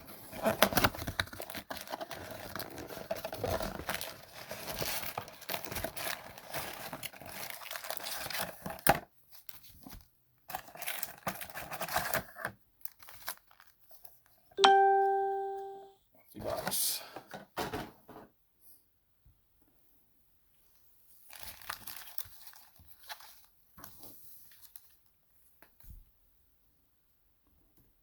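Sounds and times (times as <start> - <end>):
plastic wrapping crinkling: 0.0 - 10.0, 10.6 - 14.4, 21.2 - 23.6, 24.4 - 25.1.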